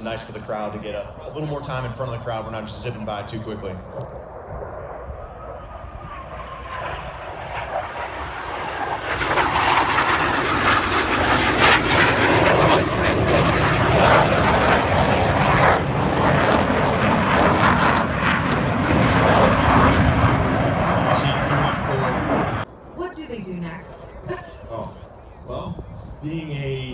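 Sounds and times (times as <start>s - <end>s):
jets making a low pass: 0.0s - 22.7s.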